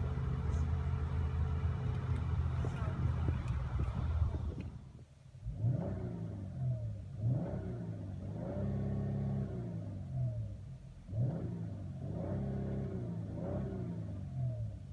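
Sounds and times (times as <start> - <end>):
car engine revving: 5.4 - 14.8.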